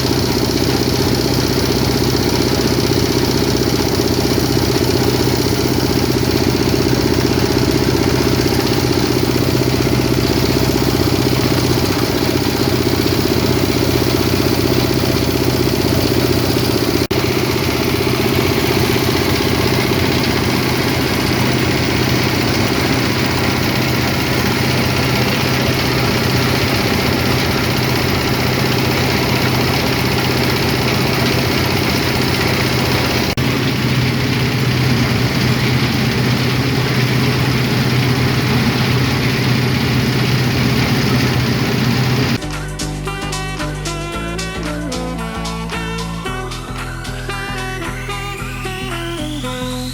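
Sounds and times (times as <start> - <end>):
chipping machine humming: 0.0 - 42.4.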